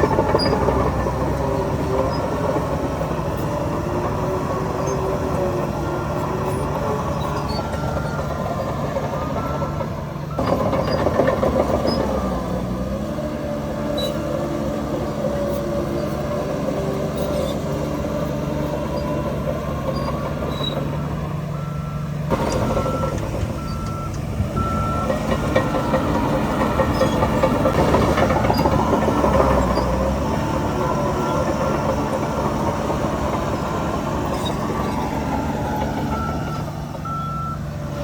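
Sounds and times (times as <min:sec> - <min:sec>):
diesel earthmoving machinery running: 0:00.0 - 0:38.0
reversing alarm beeping: 0:04.4 - 0:12.4, 0:18.7 - 0:37.8.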